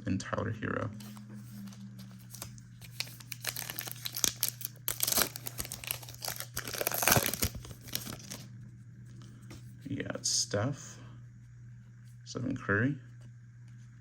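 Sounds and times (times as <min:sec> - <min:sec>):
low steady hum: 0:00.0 - 0:14.0
foil pack tearing and crinkling: 0:02.2 - 0:08.4.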